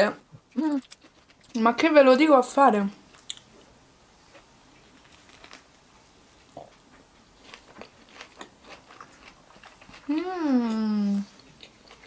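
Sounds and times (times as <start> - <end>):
faint chewing: 0.5 - 1.8, 6.4 - 12.0.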